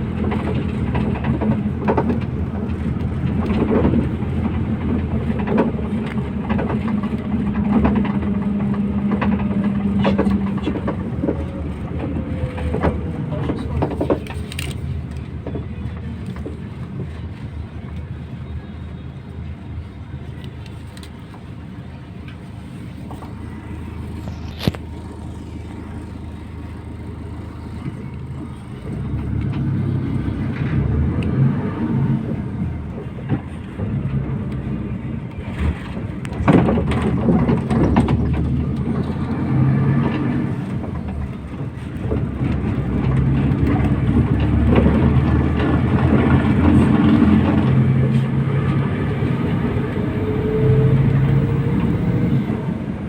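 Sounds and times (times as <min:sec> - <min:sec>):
knocks and rattles: 0:00.0 - 0:14.6, 0:35.4 - 0:48.7
bus engine running: 0:00.0 - 0:53.0.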